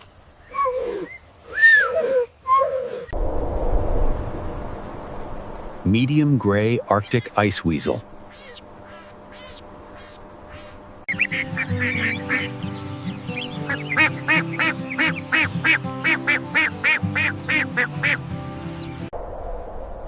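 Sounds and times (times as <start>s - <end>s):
repeated animal calls: 8.3s - 18.8s
background music: 11.1s - 19.1s.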